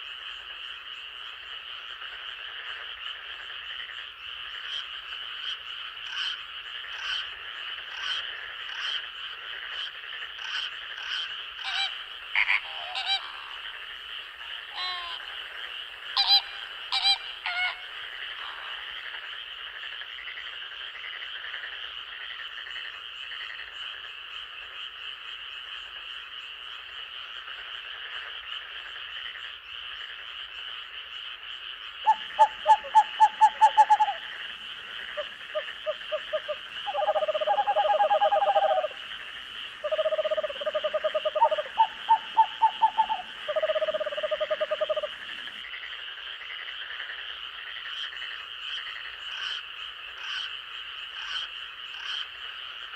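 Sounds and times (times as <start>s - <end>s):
short frog calls: 0.0s - 52.9s
high-pitched frog drone: 32.0s - 45.3s.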